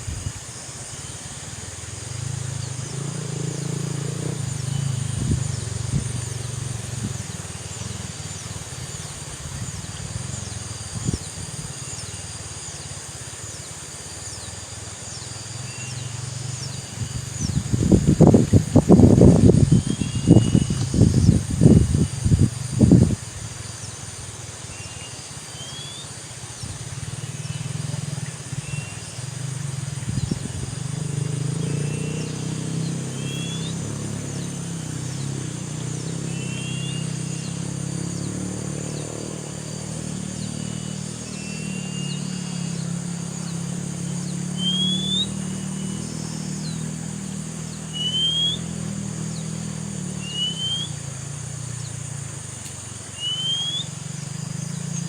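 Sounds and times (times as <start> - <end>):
high insect buzz: 0.0 - 55.0
low motor drone: 1.6 - 12.4, 26.5 - 53.0
bird rising whistled notes: 19.6 - 21.4, 31.8 - 33.9, 36.3 - 37.6, 40.6 - 42.8, 44.5 - 46.0, 47.9 - 48.7, 50.2 - 51.0, 53.1 - 54.0.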